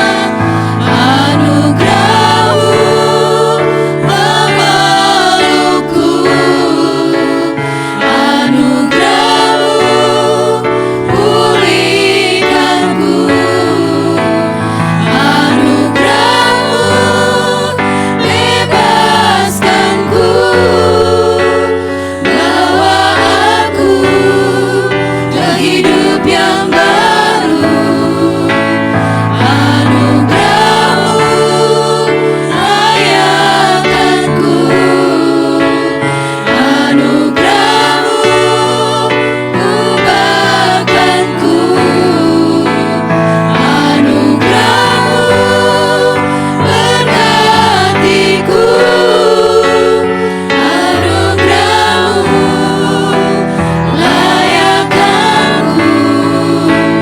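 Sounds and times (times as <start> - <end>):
church choir singing: 0.0 - 57.0.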